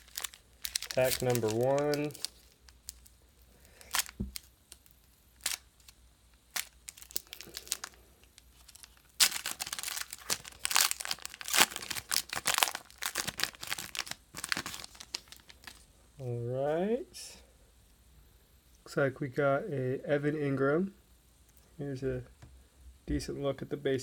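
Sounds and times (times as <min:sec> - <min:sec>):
wrapper crinkling and tearing: 0:00.0 - 0:15.9.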